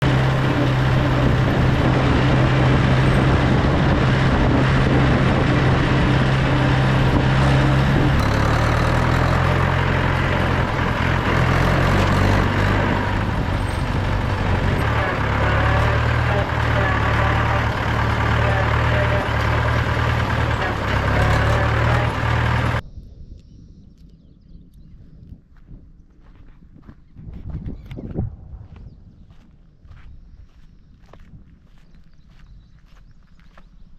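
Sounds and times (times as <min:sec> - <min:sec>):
tractor diesel engine running: 0:00.0 - 0:22.8.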